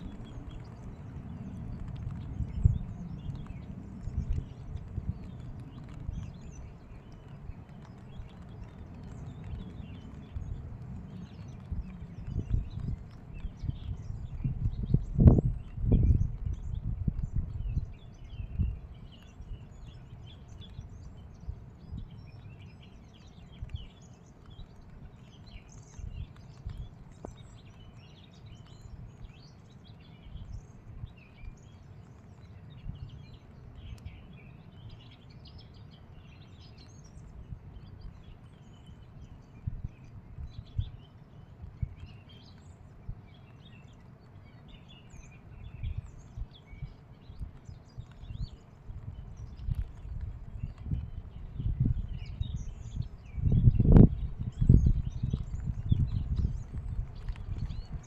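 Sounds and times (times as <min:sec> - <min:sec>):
steady low rumble: 0:00.0 - 0:22.5
small birds chirping: 0:00.0 - 0:58.0.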